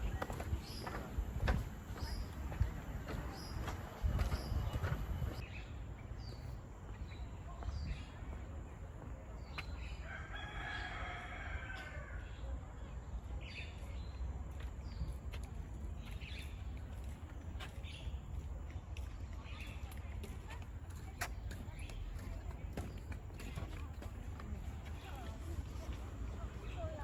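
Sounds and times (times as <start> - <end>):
rooster crowing: 10.0 - 12.2.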